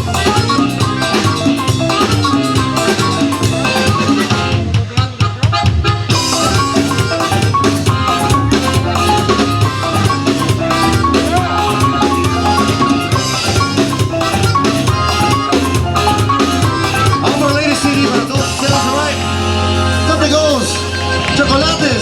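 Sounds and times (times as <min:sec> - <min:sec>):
bass: 0:00.0 - 0:22.0
drum kit: 0:00.0 - 0:22.0
live band playing: 0:00.0 - 0:22.0
bright quick melody line: 0:06.1 - 0:22.0.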